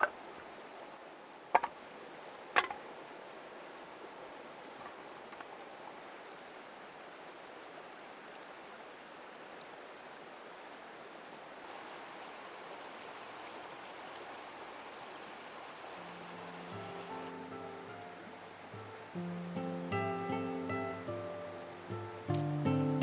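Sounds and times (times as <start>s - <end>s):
river water rushing: 0.0s - 23.0s
acoustic guitar music: 16.0s - 23.0s.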